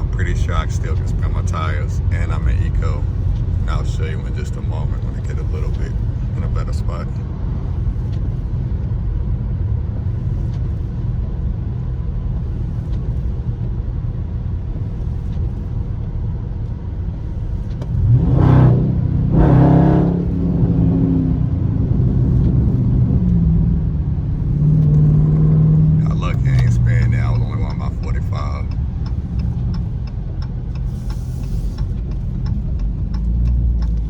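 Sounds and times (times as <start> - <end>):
car engine drone: 0.0 - 34.0
road noise: 0.0 - 34.0
engine revving under throttle: 17.3 - 34.0.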